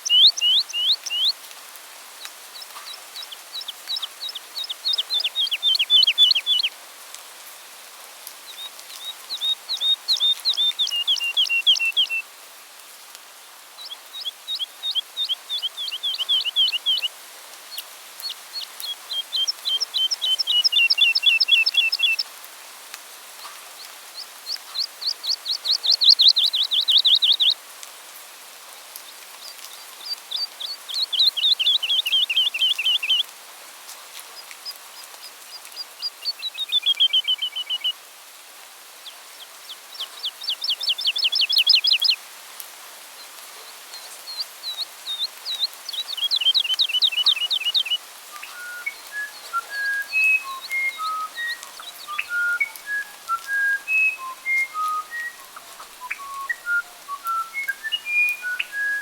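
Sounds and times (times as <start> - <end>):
songbird trilling: 0.0 - 1.4, 2.6 - 6.7, 9.3 - 12.2, 14.2 - 17.1, 18.6 - 22.2, 24.2 - 27.6, 29.9 - 33.2, 35.5 - 38.0, 39.7 - 42.2, 44.3 - 59.0.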